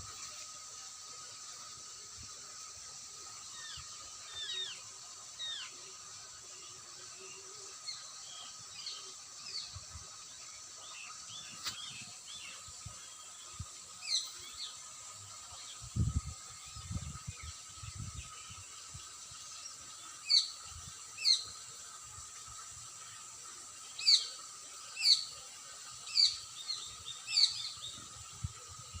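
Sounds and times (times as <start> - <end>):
small birds chirping: 23.7 - 29.0.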